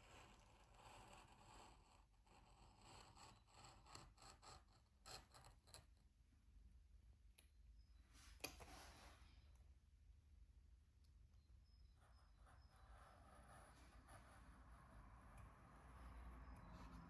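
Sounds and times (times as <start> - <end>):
small scraping and rustling strokes: 8.1 - 9.5.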